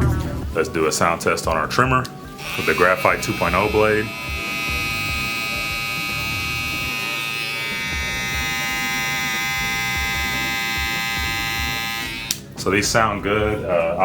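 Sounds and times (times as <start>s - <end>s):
hair trimmer buzzing: 2.4s - 12.4s.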